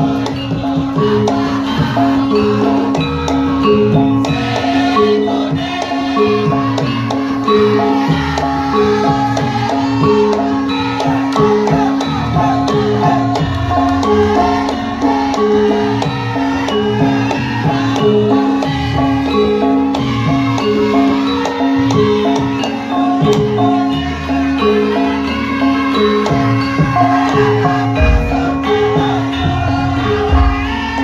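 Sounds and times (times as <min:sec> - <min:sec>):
metallophones striking a melody: 0:00.0 - 0:31.0
drum strokes: 0:25.9 - 0:31.0.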